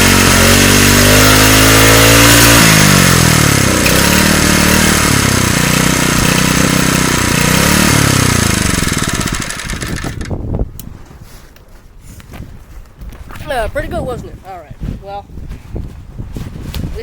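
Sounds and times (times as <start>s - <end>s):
engine revving: 0.0s - 10.3s.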